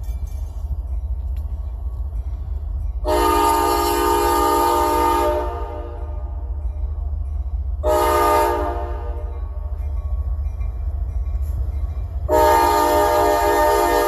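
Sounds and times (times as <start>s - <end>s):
locomotive air horn blasts: 3.0s - 6.3s, 7.8s - 9.3s, 12.2s - 14.0s.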